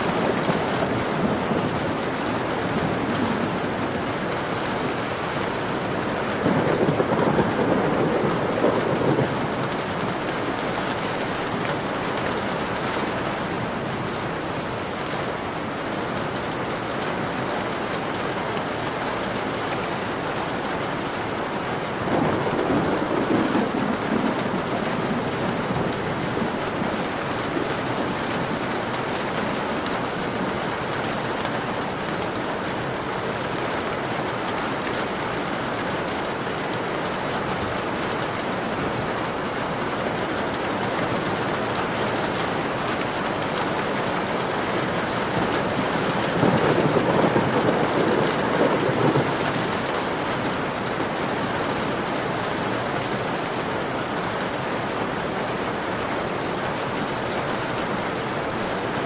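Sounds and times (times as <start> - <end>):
thunder rumbling: 0.0 - 13.4, 21.9 - 30.5, 44.8 - 51.3
heavy rain on a window: 0.0 - 59.0.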